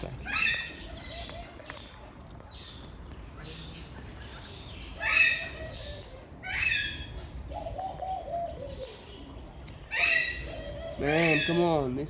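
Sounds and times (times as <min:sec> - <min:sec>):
dove cooing: 0:04.8 - 0:11.8.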